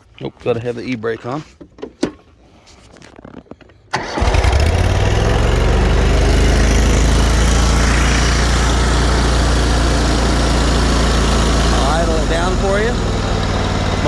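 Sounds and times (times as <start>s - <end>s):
lawn mower engine starting and running: 3.9s - 14.0s.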